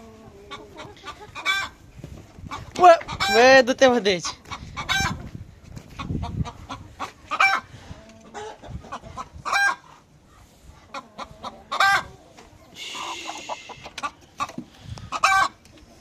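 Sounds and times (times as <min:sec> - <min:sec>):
chickens clucking: 0:00.0 - 0:16.0
chicken squawks: 0:00.2 - 0:01.8, 0:04.5 - 0:05.2, 0:06.0 - 0:10.0, 0:10.9 - 0:15.6
short rasping call: 0:12.8 - 0:13.9.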